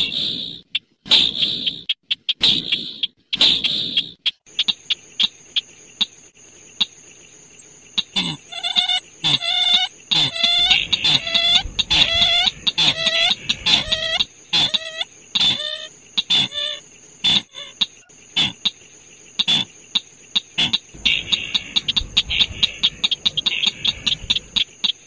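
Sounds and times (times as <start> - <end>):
harsh bird call notes: 8.5 - 14.8, 21.0 - 24.7.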